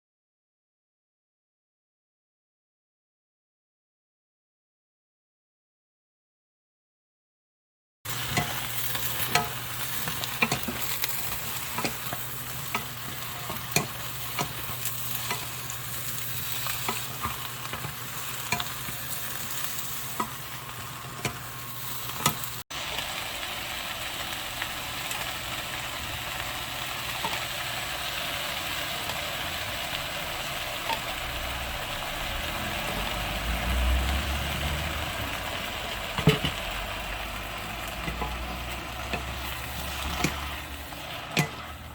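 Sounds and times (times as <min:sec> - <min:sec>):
eggplant sizzling in a pan: 0:08.1 - 0:41.9
utensil scraping a pan: 0:08.2 - 0:22.5, 0:38.0 - 0:41.9.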